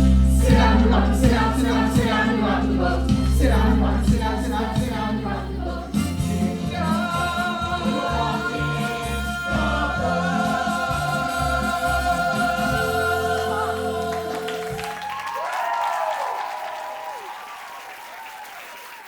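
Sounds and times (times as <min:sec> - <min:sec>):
band playing: 0:00.0 - 0:15.2
ensemble singing show tune: 0:00.0 - 0:15.5
audience cheering and whooping: 0:09.5 - 0:19.0.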